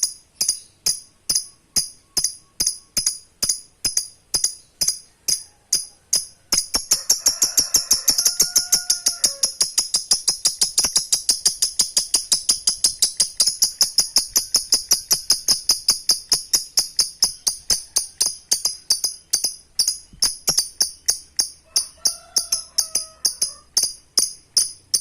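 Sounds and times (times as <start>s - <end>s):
lovebird chattering: 0.0s - 25.0s.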